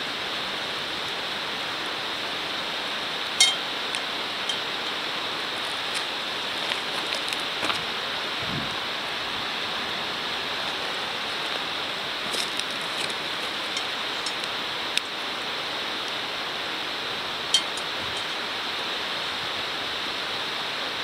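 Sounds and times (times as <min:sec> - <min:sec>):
steady rushing hiss: 0:08.4 - 0:08.9.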